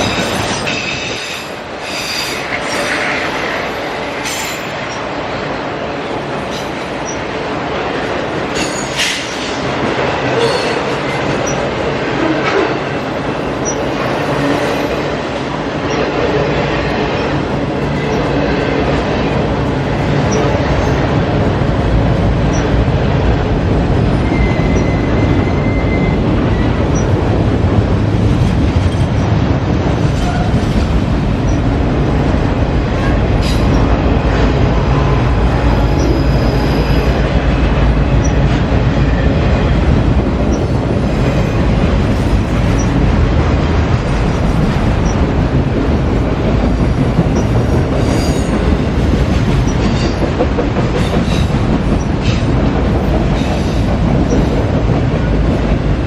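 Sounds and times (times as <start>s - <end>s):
train wheels rumbling on rail: 0.0s - 56.0s
high wheel squeal: 24.3s - 26.7s, 35.7s - 37.2s.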